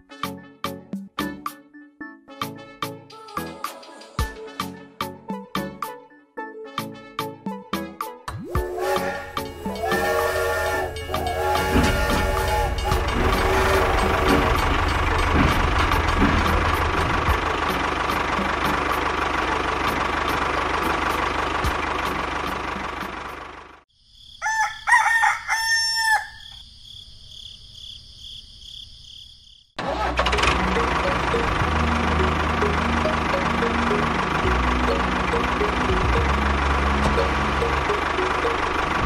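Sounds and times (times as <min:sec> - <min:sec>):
rooster crowing: 0:08.7 - 0:14.4, 0:24.3 - 0:26.6.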